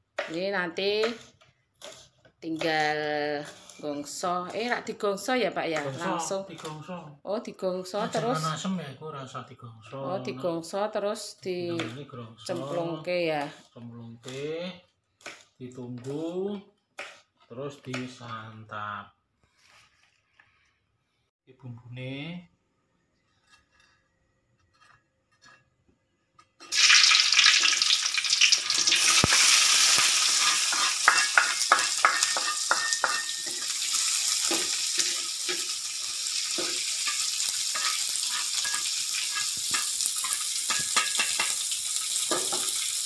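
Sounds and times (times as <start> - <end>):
metal spatula scraping wok: 0.8 - 4.8, 23.2 - 25.8, 28.7 - 43.0
food sizzling in hot oil: 1.8 - 5.0, 26.6 - 43.0.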